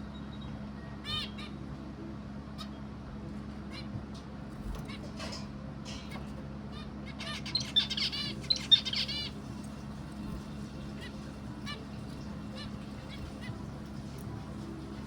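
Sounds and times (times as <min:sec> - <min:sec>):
steady low hum: 0:00.0 - 0:15.0
bird chirping: 0:07.2 - 0:09.5.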